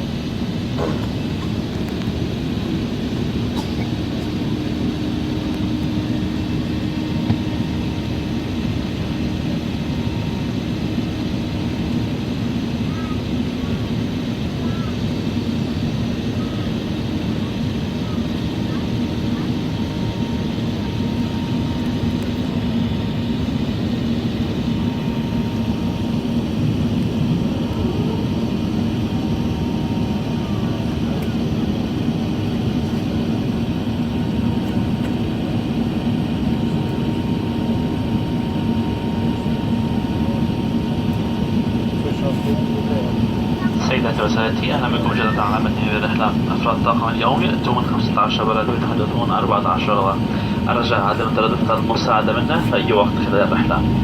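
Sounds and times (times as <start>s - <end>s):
airliner cabin engine noise: 0.0s - 54.0s
faint steady whine: 36.7s - 54.0s
low steady hum: 43.6s - 54.0s.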